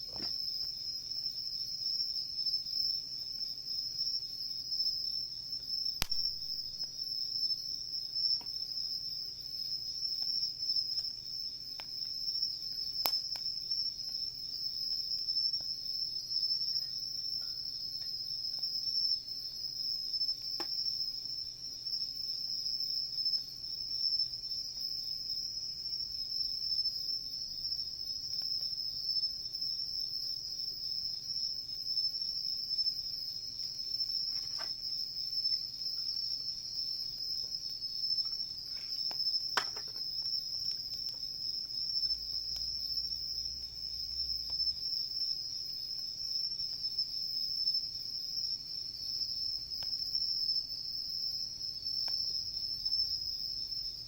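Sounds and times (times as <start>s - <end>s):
campfire crackling pops: 0.0s - 0.7s, 6.0s - 7.0s, 10.1s - 15.8s, 20.2s - 21.0s, 34.0s - 45.1s, 51.9s - 53.0s
insects chorus: 0.0s - 54.0s.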